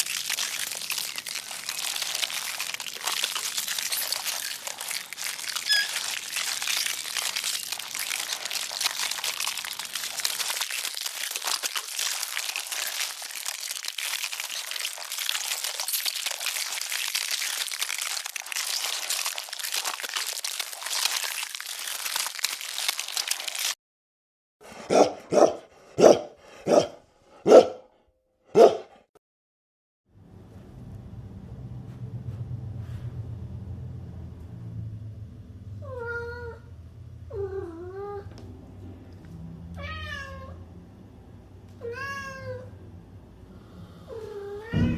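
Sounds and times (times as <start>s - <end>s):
dog barking: 24.8s - 27.9s, 28.5s - 29.0s.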